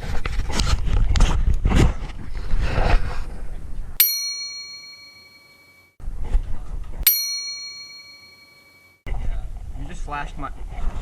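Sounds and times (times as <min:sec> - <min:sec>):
bright bell ding: 0:04.0 - 0:05.9, 0:07.0 - 0:09.0.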